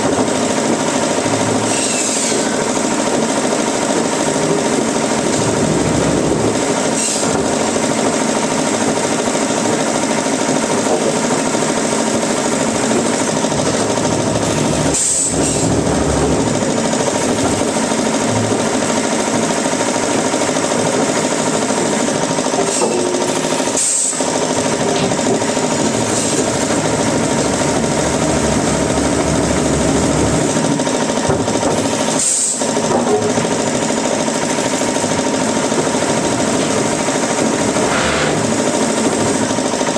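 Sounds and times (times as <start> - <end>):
woodworking machinery running: 0.0 - 39.9.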